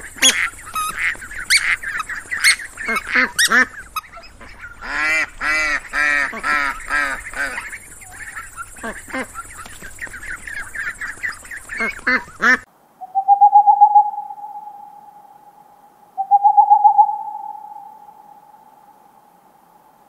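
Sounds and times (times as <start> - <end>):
duck quacking: 0.0 - 12.7
owl hooting: 0.0 - 19.3.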